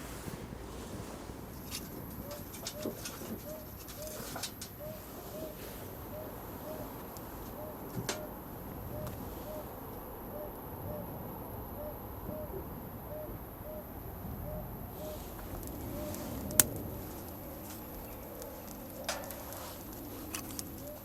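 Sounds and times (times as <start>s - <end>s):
bird hooting: 2.2s - 21.0s
sharp crack: 15.4s - 21.0s.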